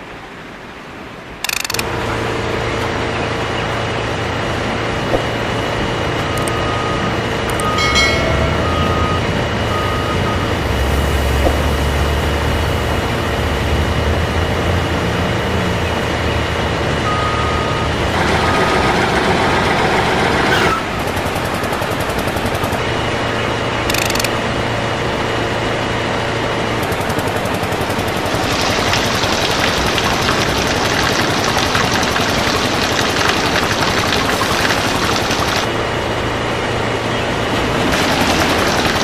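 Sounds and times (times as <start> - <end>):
heavy machinery engine noise: 0.0 - 39.0
short beeps: 6.3 - 10.6, 17.1 - 17.9.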